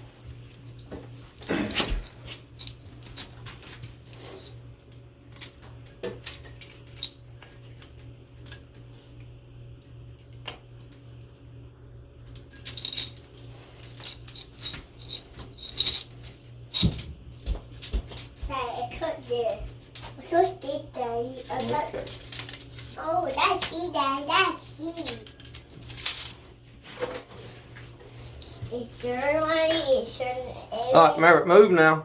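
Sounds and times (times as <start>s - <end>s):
steady low hum: 0.0s - 32.0s
metallic clinks of tools: 12.4s - 17.1s.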